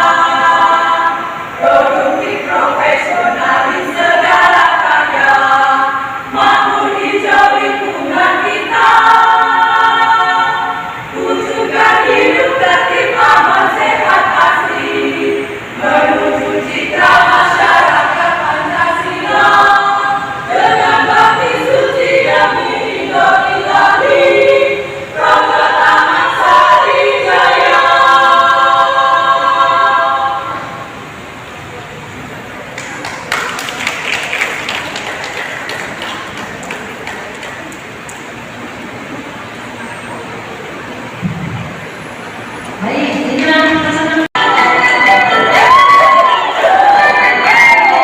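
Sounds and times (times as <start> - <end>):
women's choir singing: 0.0 - 31.5, 42.7 - 48.0.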